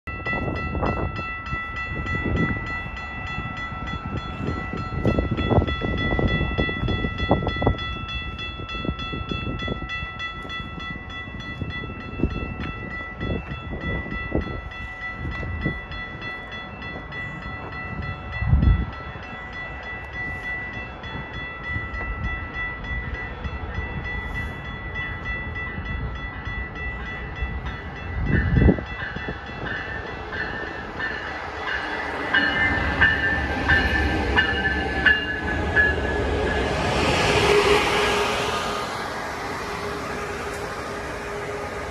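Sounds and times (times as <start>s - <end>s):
train rumbling on rails: 0.1s - 41.9s
steady high-pitched tones: 14.4s - 41.9s.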